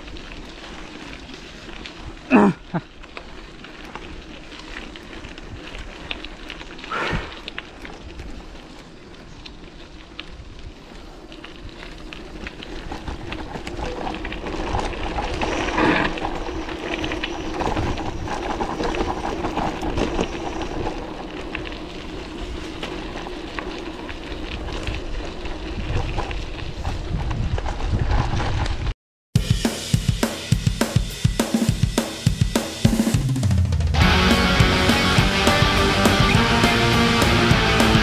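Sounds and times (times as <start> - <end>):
bike tyre and drivetrain rattle: 0.0 - 28.9
wind on microphone: 24.8 - 28.9.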